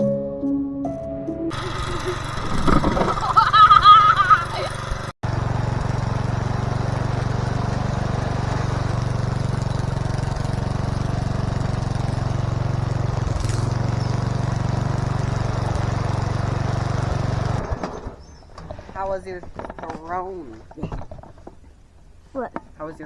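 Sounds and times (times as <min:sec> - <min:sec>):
small vehicle engine running: 0:01.5 - 0:22.9.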